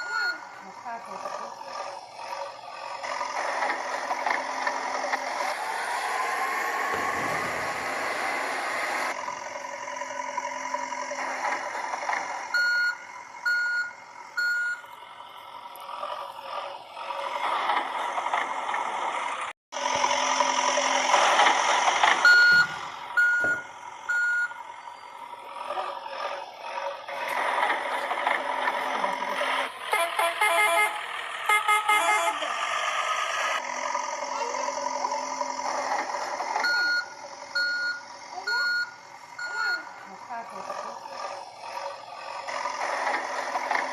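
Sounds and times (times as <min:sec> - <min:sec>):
short reversing beeps: 0:12.6 - 0:14.8, 0:22.2 - 0:25.2, 0:36.6 - 0:39.9.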